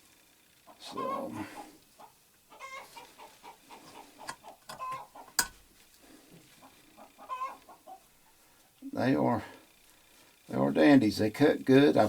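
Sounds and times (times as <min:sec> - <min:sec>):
bird clucking calls: 0:00.7 - 0:05.5, 0:06.6 - 0:08.1.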